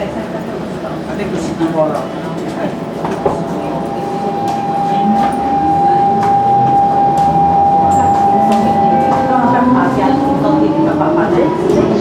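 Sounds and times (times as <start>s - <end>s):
train wheel and running noise: 0.0s - 12.0s
train traction motor whining: 2.9s - 12.0s.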